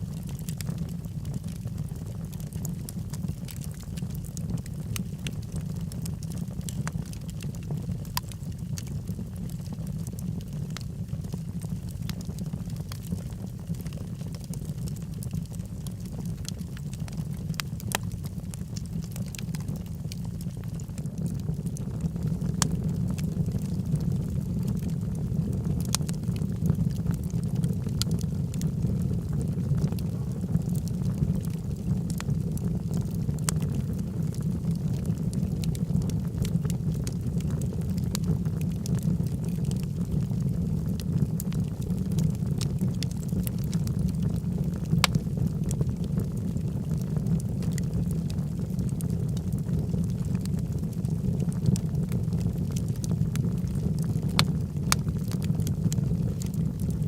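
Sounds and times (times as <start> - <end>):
logs crackling and popping: 0.0 - 57.0
fire flames roaring: 0.1 - 57.0.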